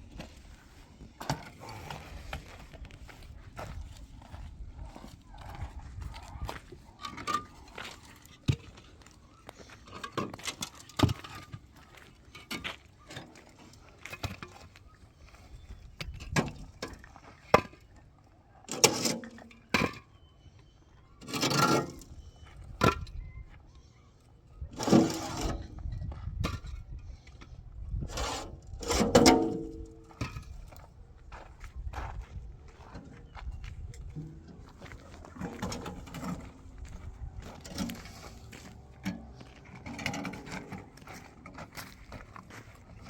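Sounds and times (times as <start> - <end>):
clattering scrapes: 24.8 - 25.8, 28.1 - 30.5, 37.6 - 42.0.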